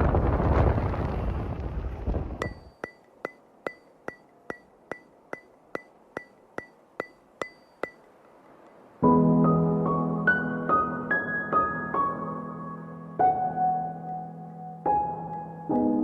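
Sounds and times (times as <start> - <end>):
sharp ringing clicks: 2.4 - 8.9
piano music: 9.0 - 16.0.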